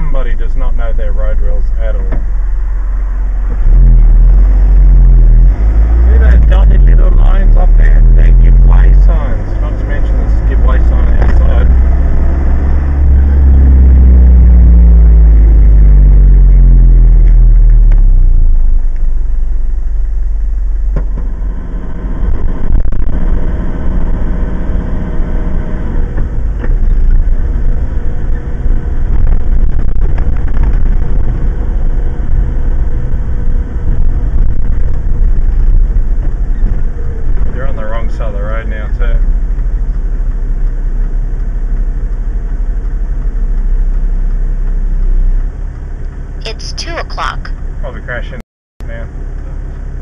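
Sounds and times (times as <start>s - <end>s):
car engine and tyre rumble: 0.0s - 50.0s.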